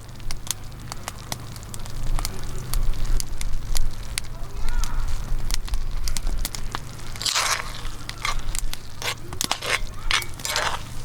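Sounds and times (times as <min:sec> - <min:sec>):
campfire crackling with pops: 0:00.0 - 0:11.0
crunches: 0:07.1 - 0:11.0.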